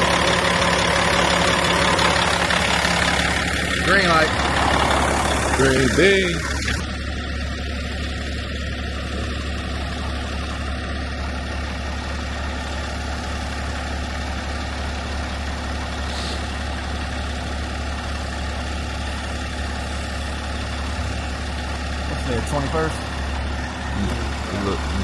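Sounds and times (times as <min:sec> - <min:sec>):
diesel truck engine droning: 0:00.0 - 0:25.0.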